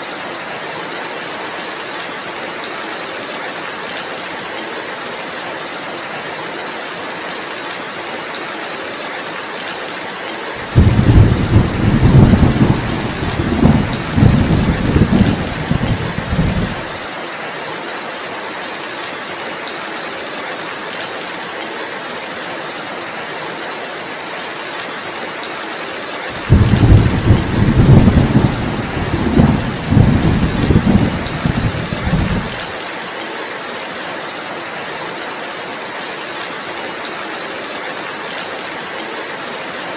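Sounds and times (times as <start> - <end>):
heavy rain falling: 0.1 - 39.9
rolling thunder: 10.6 - 17.0, 26.4 - 32.7.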